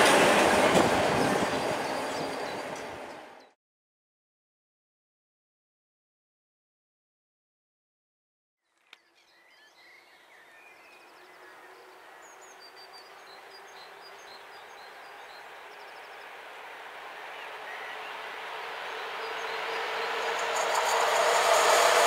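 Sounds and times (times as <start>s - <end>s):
approaching electric train hum: 0.0s - 3.6s, 10.2s - 22.0s
small birds chirping: 8.7s - 16.4s.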